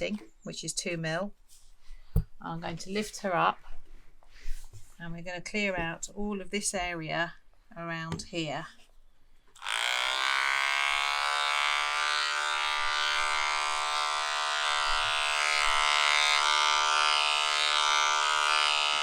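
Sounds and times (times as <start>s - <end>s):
electric clippers buzzing: 9.6s - 19.0s.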